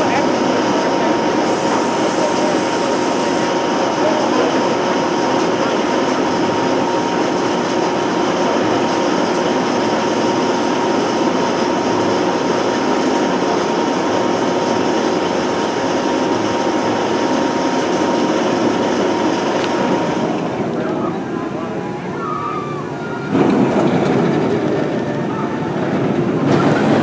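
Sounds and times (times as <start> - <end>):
roller coaster rumbling: 0.0 - 27.0.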